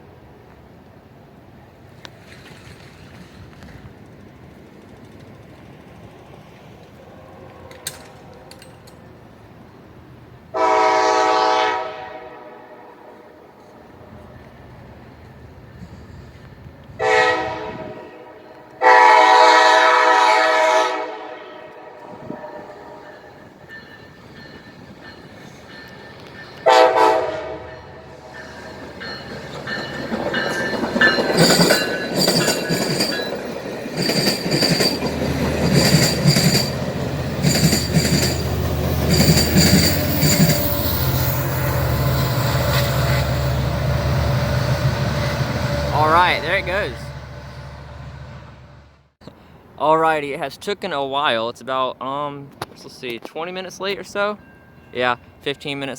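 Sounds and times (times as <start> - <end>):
train wheels clicking over rail joints: 2.0 - 9.5, 28.4 - 43.5
locomotive air horn blasts: 10.5 - 13.6, 17.0 - 23.4, 26.6 - 28.3
high metallic wheel squeal: 37.4 - 43.6.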